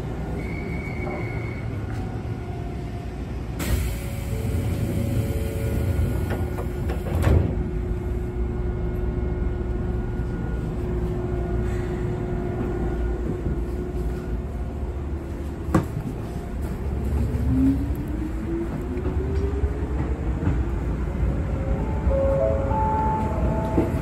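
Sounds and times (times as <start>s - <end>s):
train carriage rumble: 0.0s - 24.0s.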